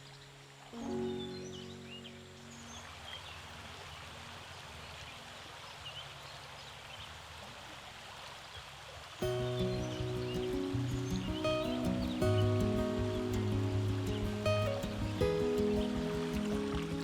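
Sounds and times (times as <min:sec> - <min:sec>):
steady hiss of water: 0:00.0 - 0:17.0
background music: 0:00.8 - 0:02.6, 0:09.2 - 0:17.0.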